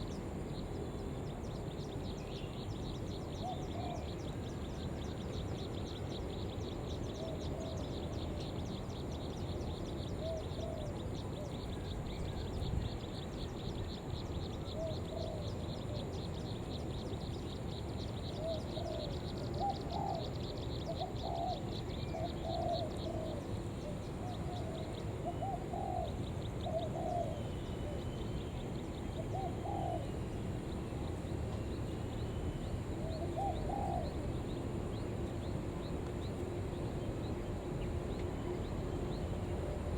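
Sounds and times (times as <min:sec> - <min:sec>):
dove cooing: 0:18.4 - 0:20.3, 0:20.9 - 0:23.4, 0:24.5 - 0:28.0, 0:29.2 - 0:30.2, 0:33.0 - 0:34.3.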